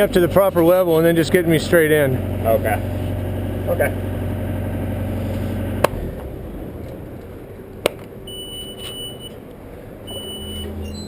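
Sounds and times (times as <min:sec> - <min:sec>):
low engine hum: 0:00.0 - 0:11.0
electronic warning beep: 0:08.3 - 0:09.4, 0:10.1 - 0:11.0.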